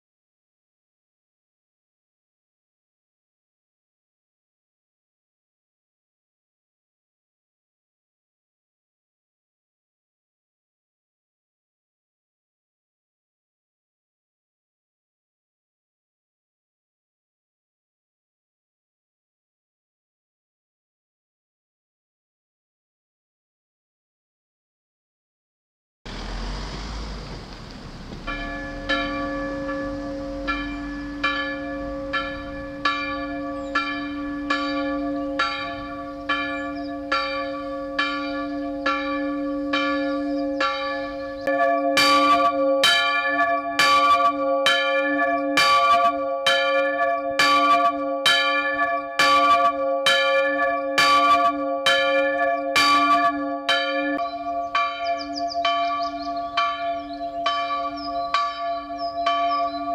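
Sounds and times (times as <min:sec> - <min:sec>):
large church bell ringing: 0:26.1 - 0:59.9
smaller church bell ringing: 0:26.1 - 0:59.9.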